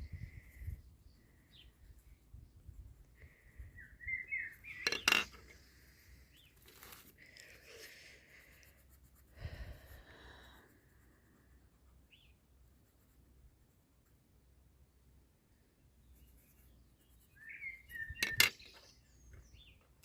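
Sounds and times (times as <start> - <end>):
small birds chirping: 0.0 - 8.7, 11.9 - 12.8, 14.9 - 20.0.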